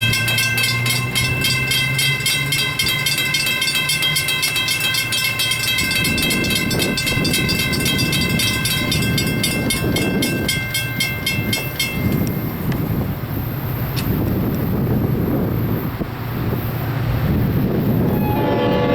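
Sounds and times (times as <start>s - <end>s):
railroad crossing bell ringing: 0.0s - 12.6s, 17.9s - 18.9s
passing train rumble: 0.0s - 18.9s.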